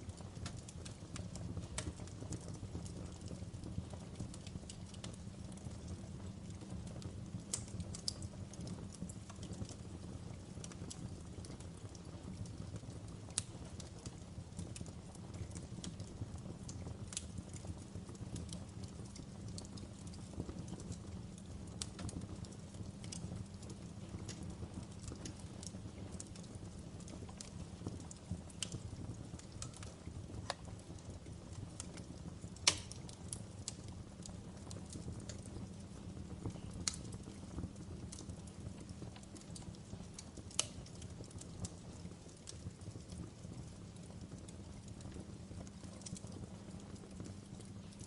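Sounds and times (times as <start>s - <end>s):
wood fire crackling and popping: 0.0s - 48.0s.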